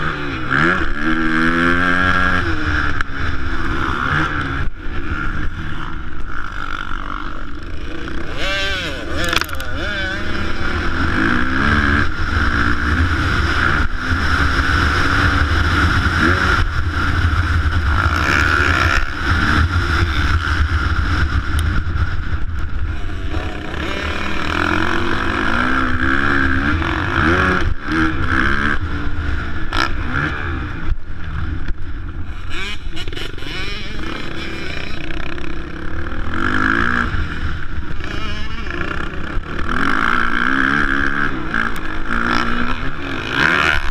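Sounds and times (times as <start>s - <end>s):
motorcycle engines revving: 0.0s - 43.9s.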